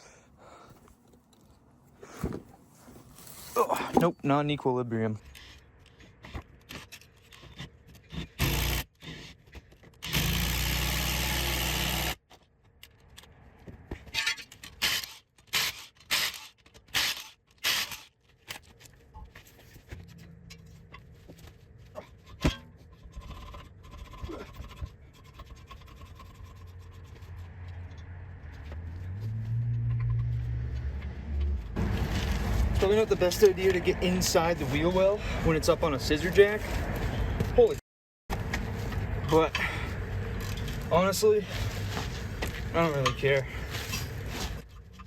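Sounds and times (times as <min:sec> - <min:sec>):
metal parts clanking and scraping: 0:05.2 - 0:10.2, 0:14.0 - 0:28.2, 0:39.2 - 0:45.0
power tool bursts: 0:08.4 - 0:08.9, 0:10.0 - 0:12.2.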